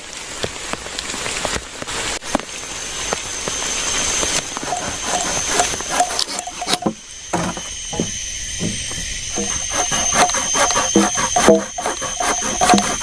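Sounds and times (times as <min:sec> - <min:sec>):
rain falling in forest: 0:00.0 - 0:04.6
raindrops striking close by: 0:00.0 - 0:04.6
steady high-pitched whine: 0:02.2 - 0:13.0.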